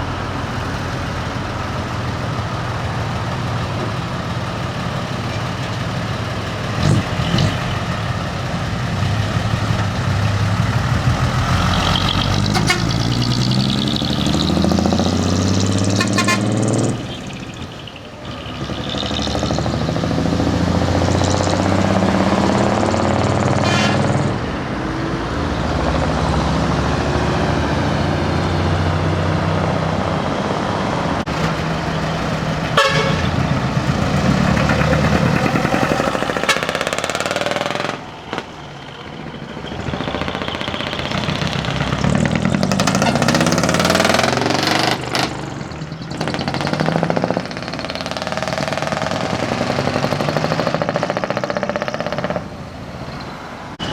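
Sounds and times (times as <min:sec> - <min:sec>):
vehicle engines running: 0:00.0 - 0:53.9
car horns: 0:11.4 - 0:17.6, 0:21.6 - 0:24.6, 0:31.3 - 0:45.2.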